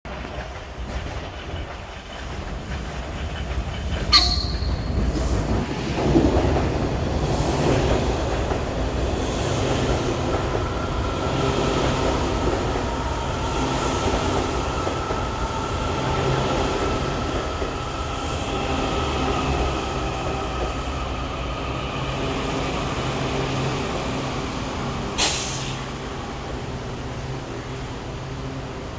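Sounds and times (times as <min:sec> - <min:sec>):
train wheels rumbling: 0:00.1 - 0:28.9
train brakes screeching: 0:04.0 - 0:05.6, 0:25.2 - 0:26.0
sharp wheel squeal: 0:04.1 - 0:05.3.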